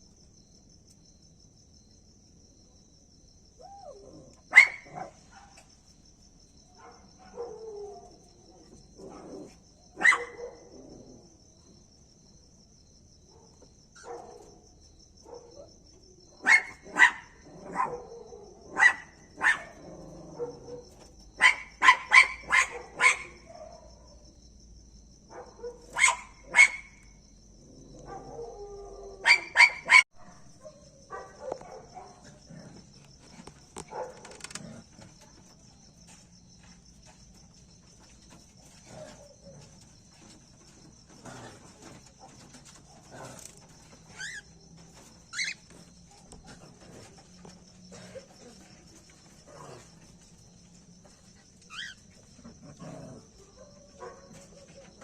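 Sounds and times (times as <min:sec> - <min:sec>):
insects trilling: 0:00.0 - 0:55.0
dog barking: 0:03.7 - 0:05.6, 0:06.8 - 0:08.2, 0:09.9 - 0:10.8, 0:13.3 - 0:14.6, 0:15.2 - 0:15.7, 0:16.4 - 0:24.2, 0:25.3 - 0:27.1, 0:28.0 - 0:32.4, 0:33.8 - 0:34.5, 0:53.2 - 0:55.0.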